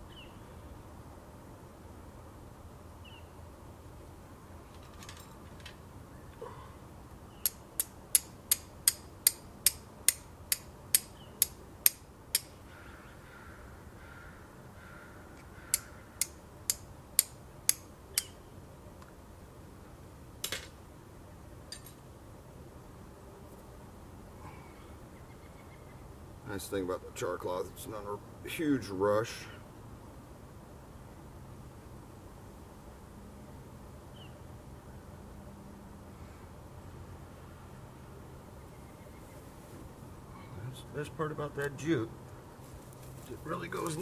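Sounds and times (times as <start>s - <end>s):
steel striker hitting flint: 7.4s - 12.6s, 15.7s - 18.4s.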